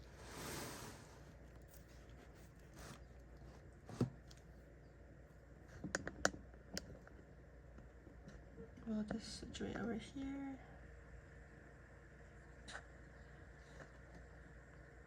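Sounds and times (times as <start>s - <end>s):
items rustling on tabletop: 0.0s - 4.6s
small clicks and taps: 5.8s - 8.4s.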